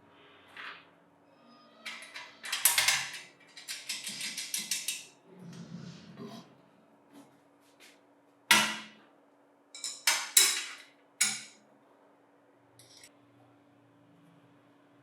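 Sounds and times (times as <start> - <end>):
metal parts knocking and clinking: 1.8 - 5.1, 9.8 - 11.6.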